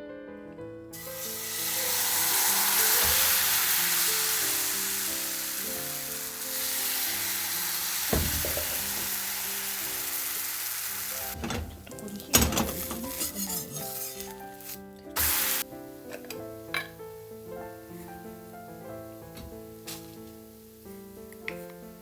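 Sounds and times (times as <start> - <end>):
soft piano music: 0.0 - 22.0
food sizzling in frying pan: 0.9 - 22.0
utensil knocking on pan: 8.1 - 9.2.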